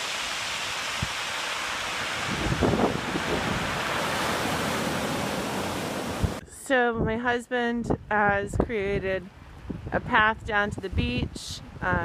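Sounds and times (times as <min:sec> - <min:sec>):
breaking surf: 0:00.0 - 0:06.4
blizzard wind: 0:00.0 - 0:07.2
wind buffeting microphone: 0:00.6 - 0:12.0.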